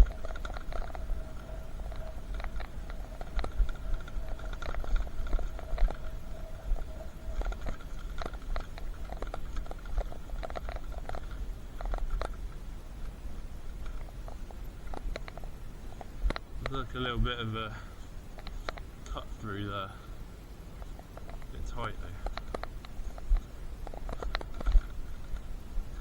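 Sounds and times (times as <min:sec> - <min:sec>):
electric bike motor whine: 0:00.0 - 0:09.7
wind rumble on microphone: 0:00.0 - 0:19.8, 0:20.7 - 0:26.0
sharp clicks and rattles: 0:00.0 - 0:20.0, 0:20.8 - 0:26.0.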